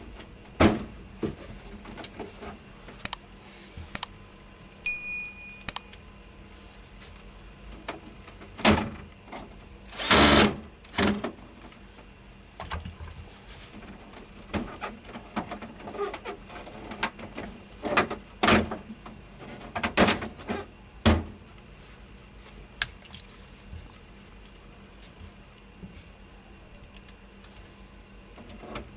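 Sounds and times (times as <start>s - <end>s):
faint steady hum: 0.0s - 28.9s.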